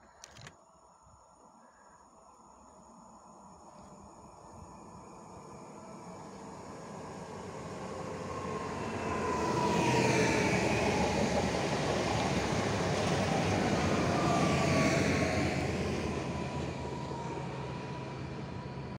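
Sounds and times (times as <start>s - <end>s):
train wheels rumbling on rails: 4.6s - 18.9s.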